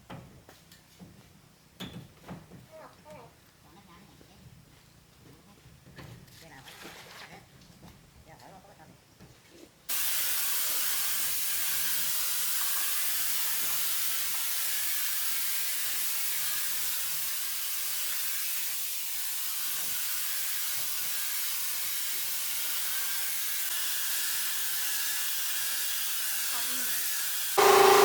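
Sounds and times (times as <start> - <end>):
steady hiss: 9.9 - 24.8.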